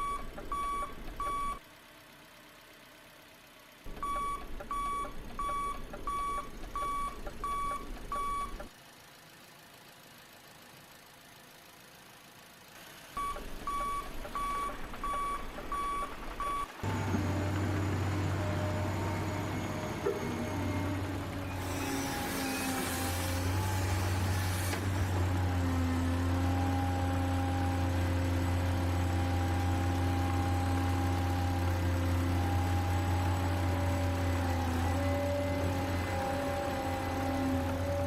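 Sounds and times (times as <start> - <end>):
engine-like hum: 0.0 - 38.0
reversing beeper: 13.2 - 22.9.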